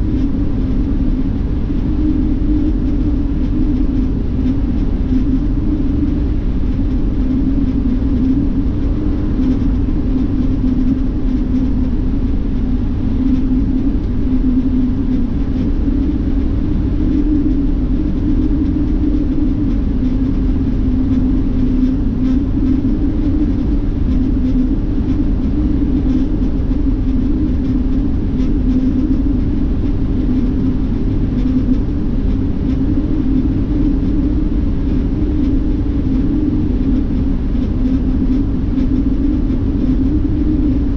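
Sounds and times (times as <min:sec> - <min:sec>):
bus engine and tyre rumble: 0:00.0 - 0:40.9.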